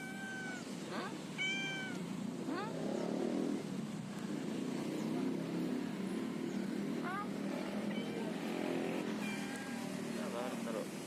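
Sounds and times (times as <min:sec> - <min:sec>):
cat meowing: 0:00.0 - 0:02.8, 0:09.1 - 0:10.0
roadside traffic noise: 0:00.0 - 0:11.0.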